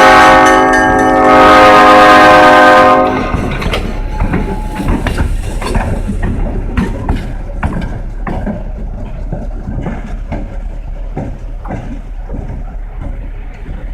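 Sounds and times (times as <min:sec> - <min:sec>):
diesel engine rumble: 0:02.8 - 0:13.9
wheels clattering over rail joints: 0:02.9 - 0:13.9.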